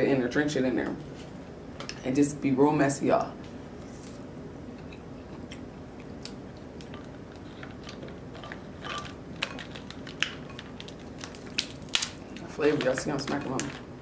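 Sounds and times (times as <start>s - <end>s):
chewing and lip smacking: 4.8s - 11.1s
crab shell clicks and crackles: 6.0s - 13.0s.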